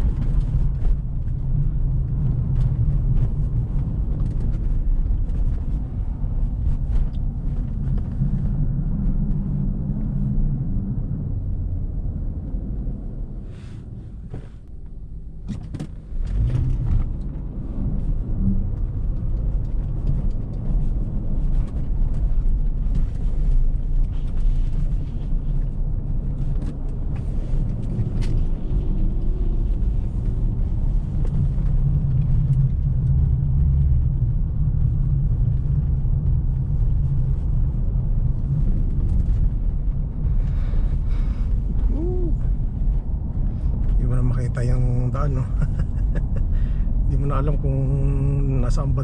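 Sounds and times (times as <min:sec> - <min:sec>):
engine and tyres rumbling: 0:00.0 - 0:49.0.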